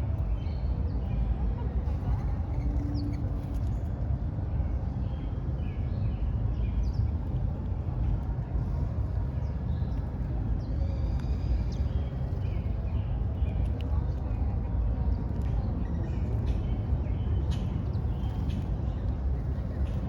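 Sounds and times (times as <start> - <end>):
low rumble of city traffic: 0.0 - 20.0
small birds chirping: 8.6 - 20.0.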